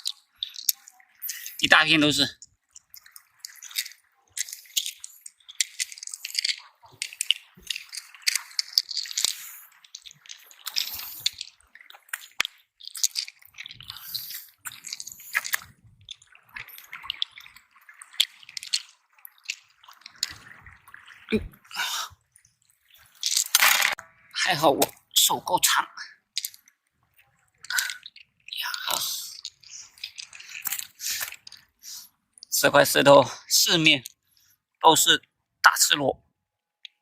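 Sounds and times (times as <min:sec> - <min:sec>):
snail shells clicking on wet rock: 0:00.0 - 0:20.9, 0:22.9 - 0:24.0, 0:26.2 - 0:26.8, 0:27.6 - 0:32.6
water dripping and splashing: 0:00.0 - 0:36.0.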